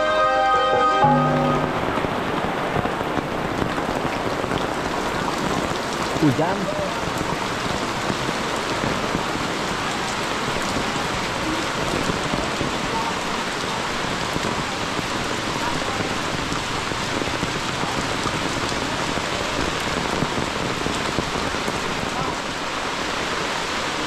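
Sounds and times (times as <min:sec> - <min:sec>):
close raindrops striking: 0:01.2 - 0:24.0
rain falling on tarpaulins: 0:01.2 - 0:24.0.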